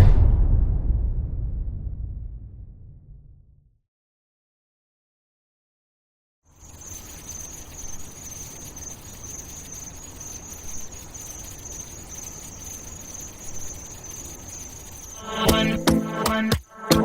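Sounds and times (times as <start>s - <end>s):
low rumble: 0.0s - 3.8s
crickets chirring: 6.5s - 17.0s.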